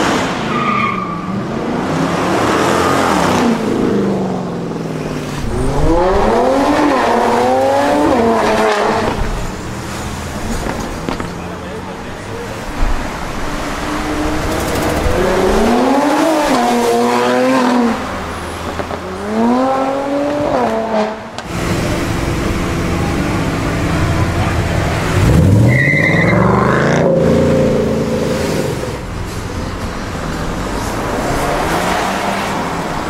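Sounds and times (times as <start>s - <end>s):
car engine revving: 1.4s - 33.0s
tyre squeal: 25.7s - 26.7s.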